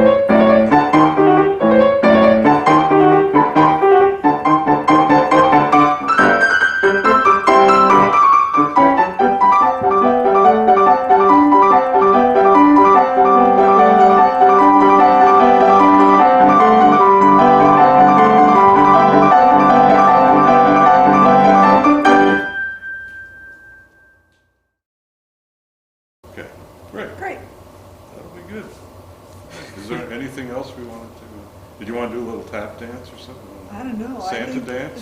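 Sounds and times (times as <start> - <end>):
piano music: 0.0 - 24.4.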